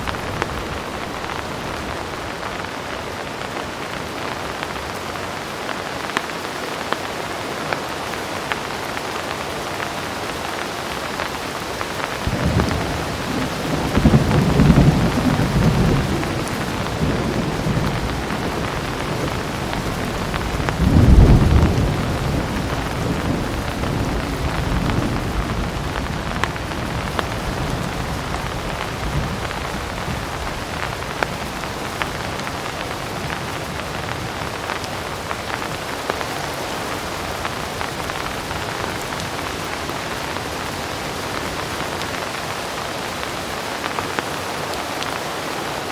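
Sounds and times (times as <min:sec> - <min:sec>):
thunder rumbling: 0:00.0 - 0:02.9, 0:11.9 - 0:42.1
heavy rain falling: 0:00.0 - 0:45.9.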